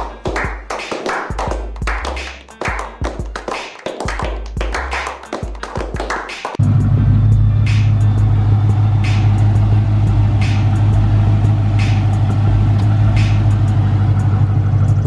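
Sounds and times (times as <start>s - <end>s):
car engine idling: 6.6s - 15.0s.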